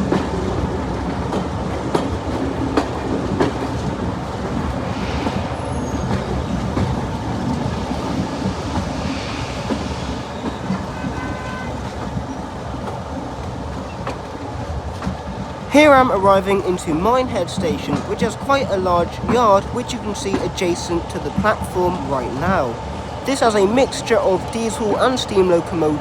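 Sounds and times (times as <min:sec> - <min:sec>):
wheels clicking over rail joints: 0:00.0 - 0:04.8, 0:06.1 - 0:26.0
train rumbling: 0:00.0 - 0:26.0.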